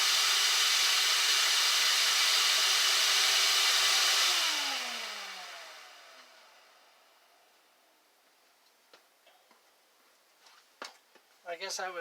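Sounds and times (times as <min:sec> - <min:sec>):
shop vac running: 0:00.0 - 0:07.1.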